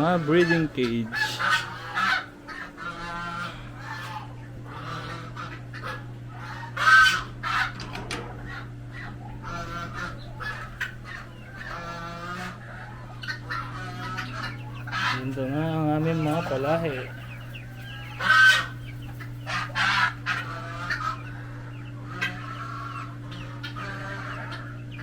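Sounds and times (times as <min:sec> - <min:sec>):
poultry honking calls: 0:00.0 - 0:25.0
steady low hum: 0:00.0 - 0:25.0.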